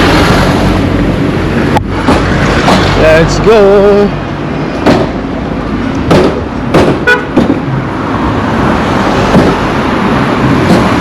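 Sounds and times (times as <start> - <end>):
road traffic: 0.0 - 11.0
sharp knocks: 1.8 - 3.0, 4.8 - 5.2, 6.0 - 7.7, 9.3 - 9.6.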